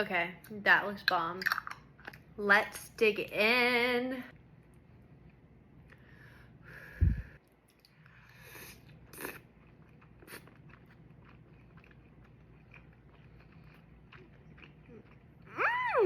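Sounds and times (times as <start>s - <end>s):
person chewing food: 7.4s - 15.6s.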